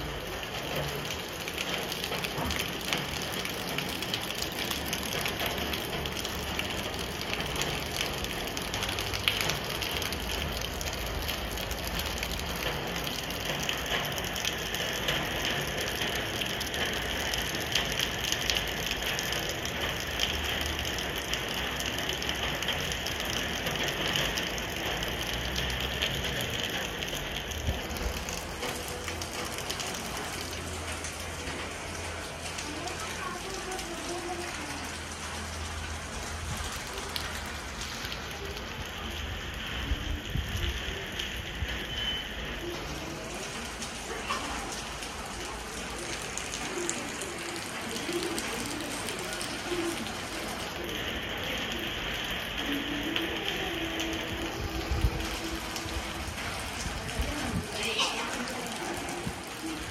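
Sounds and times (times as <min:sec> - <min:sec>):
rain on roofs: 0:00.0 - 0:59.9.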